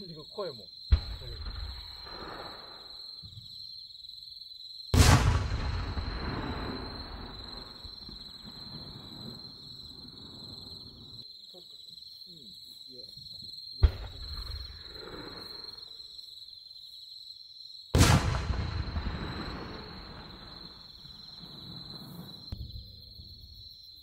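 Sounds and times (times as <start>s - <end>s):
insects chirping: 0.0s - 24.0s
firework launch crack: 0.9s - 3.0s, 5.0s - 9.5s, 13.8s - 15.5s, 18.0s - 22.6s
firework boom echoing: 5.0s - 9.4s, 13.8s - 14.9s, 18.0s - 22.8s.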